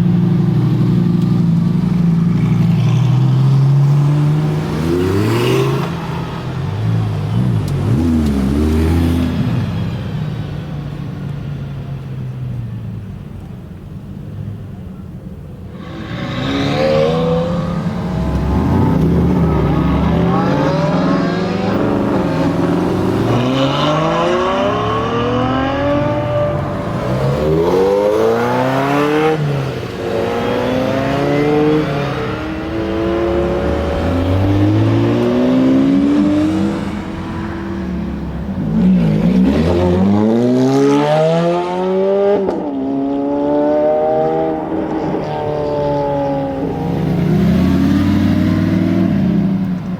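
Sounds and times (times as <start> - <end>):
sports car engine accelerating: 15.8 - 49.9.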